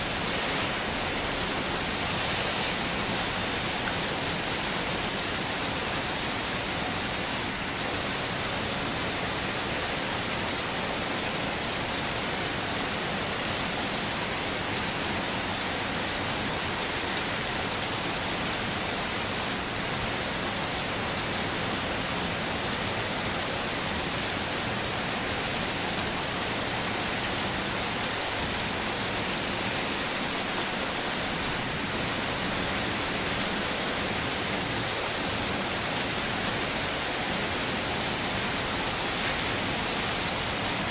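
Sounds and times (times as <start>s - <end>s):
heavy rain hissing: 0.0s - 40.9s.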